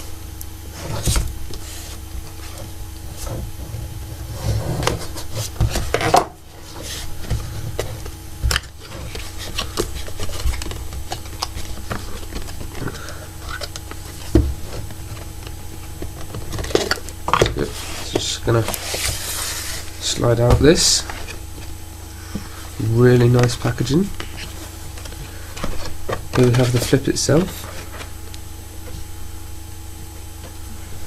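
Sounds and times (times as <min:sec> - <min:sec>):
box packaging rubbing and scraping: 0:00.6 - 0:28.3.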